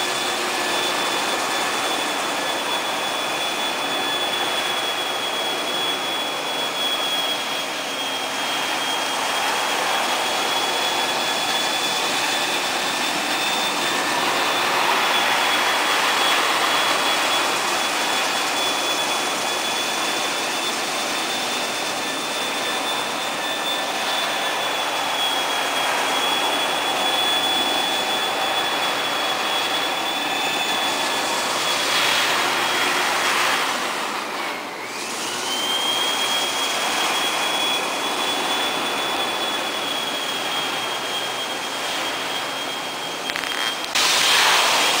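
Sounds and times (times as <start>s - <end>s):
floor scrubber motor and suction: 0.0s - 45.0s
high whine: 0.0s - 45.0s.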